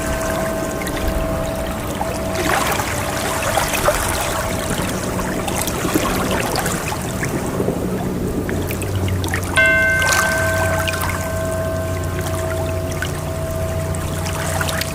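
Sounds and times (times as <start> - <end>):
held ringing tone: 0.0 - 6.3, 9.6 - 14.9
water sloshing and trickling: 0.0 - 14.9.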